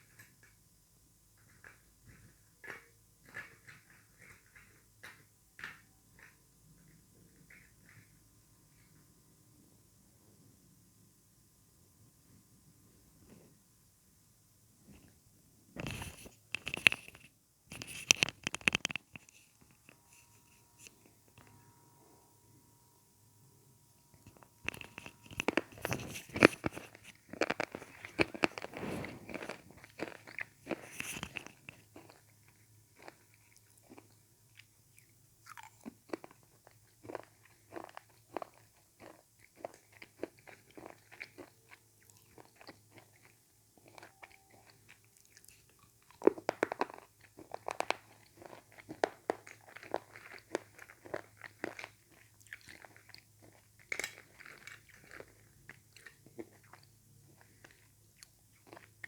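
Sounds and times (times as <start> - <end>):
slate pencils being chewed: 1.4 - 8.2, 15.8 - 21.6, 24.1 - 59.0.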